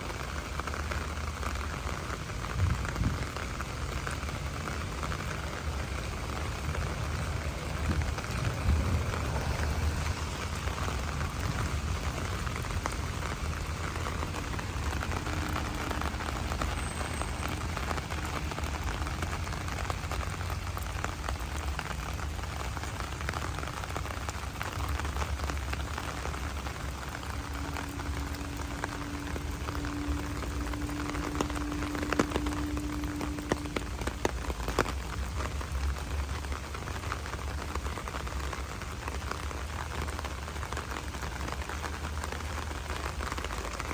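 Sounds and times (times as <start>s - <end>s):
rain pattering on ground: 0.0s - 43.9s
low rumble: 5.8s - 17.4s.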